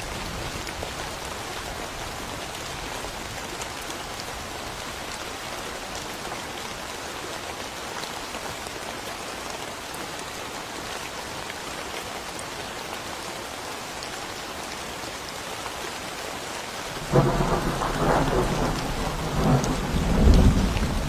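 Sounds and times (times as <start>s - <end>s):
steady rain falling: 0.0s - 21.0s
thunder crack and rumble: 17.0s - 21.0s.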